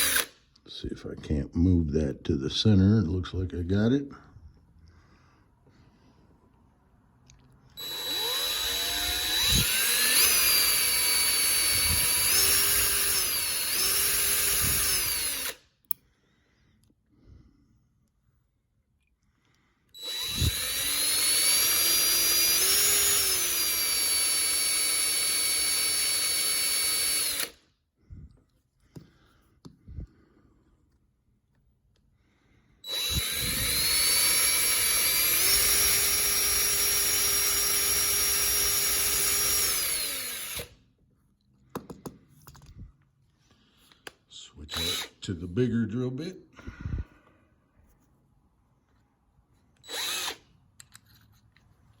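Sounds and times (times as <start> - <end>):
small electric drill whining: 0.0 - 0.4, 7.7 - 16.0, 19.9 - 27.7, 32.8 - 40.8, 44.7 - 45.3, 49.7 - 51.0.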